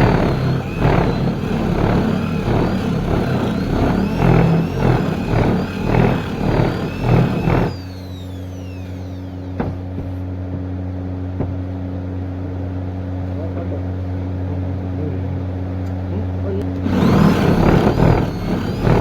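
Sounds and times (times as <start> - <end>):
woodworking machine cutting wood: 0.0 - 10.1, 16.6 - 19.0
machine motor hum: 0.0 - 10.2, 16.6 - 19.0.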